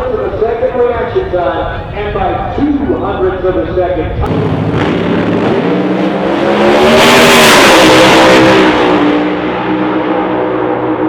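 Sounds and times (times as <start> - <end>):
race car engine passing by: 4.3 - 11.0.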